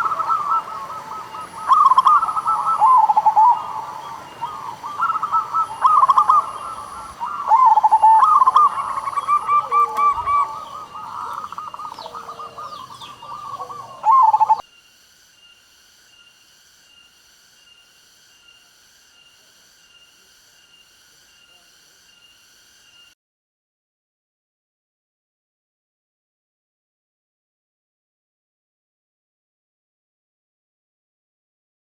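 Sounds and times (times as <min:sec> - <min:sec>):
dove cooing: 0:00.0 - 0:14.6
small birds chirping: 0:00.0 - 0:16.4.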